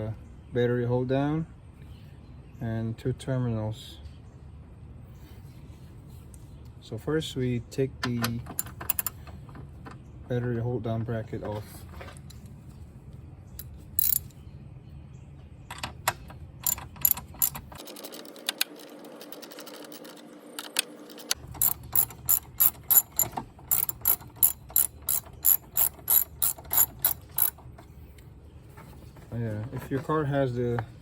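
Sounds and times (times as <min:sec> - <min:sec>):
ratchet wrench clicking: 0:08.5 - 0:09.2, 0:14.0 - 0:14.4, 0:16.6 - 0:18.1, 0:21.2 - 0:27.6.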